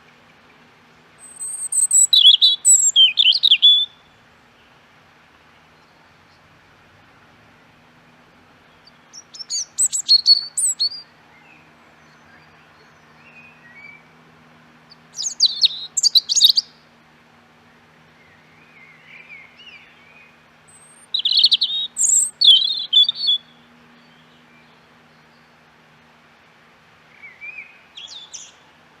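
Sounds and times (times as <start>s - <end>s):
faint lower bird calls: 0.0s - 4.8s, 8.6s - 14.2s, 14.8s - 17.0s, 17.6s - 25.8s, 27.0s - 28.9s
songbirds chirping: 0.0s - 29.0s.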